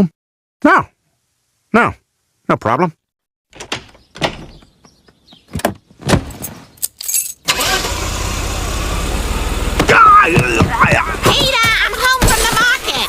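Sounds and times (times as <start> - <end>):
knocks and clunks: 3.5 - 6.5, 9.7 - 13.0
car engine running: 7.5 - 11.6.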